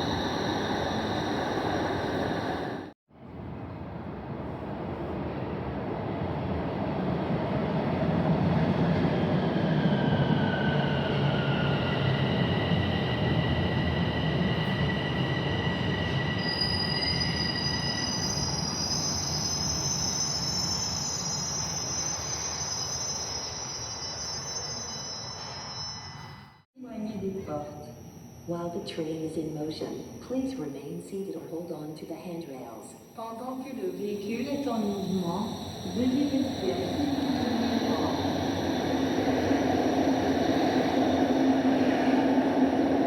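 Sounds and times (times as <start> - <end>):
high-pitched wheel squeal: 16.3 - 26.5.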